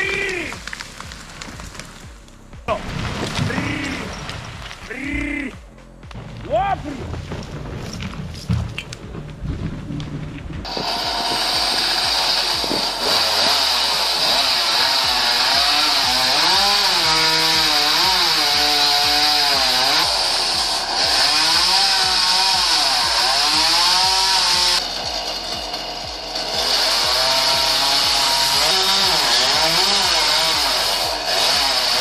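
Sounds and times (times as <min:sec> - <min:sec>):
chainsaw cutting wood: 0:00.0 - 0:02.6, 0:10.6 - 0:32.0.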